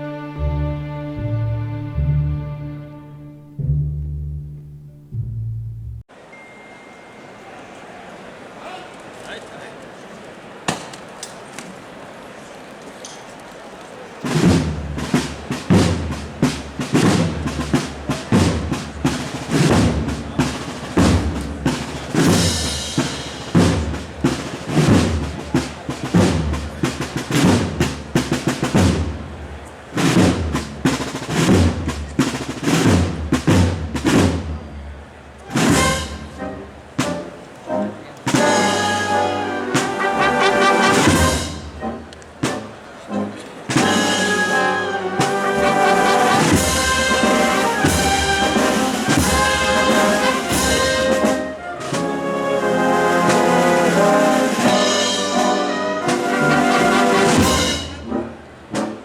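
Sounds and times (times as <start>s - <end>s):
brass chords: 0.0s - 6.0s, 35.4s - 59.0s
sharp percussive beats: 35.5s - 37.3s, 43.7s - 52.1s.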